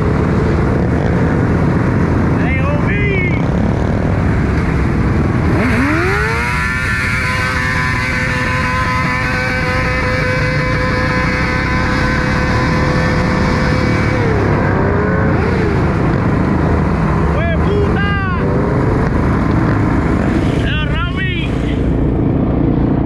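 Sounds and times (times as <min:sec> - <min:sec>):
motorcycle engine revving: 0:00.0 - 0:23.0
low rumble: 0:11.8 - 0:23.0.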